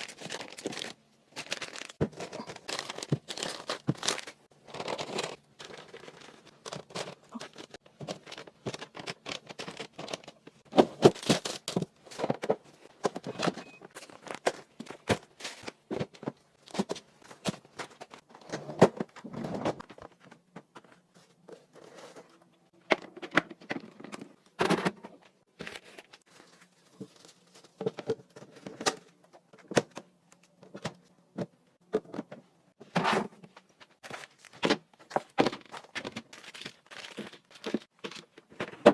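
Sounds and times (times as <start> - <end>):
packaging rustling: 0.0 - 12.3, 34.0 - 38.4
household items clicking and knocking: 0.0 - 26.0.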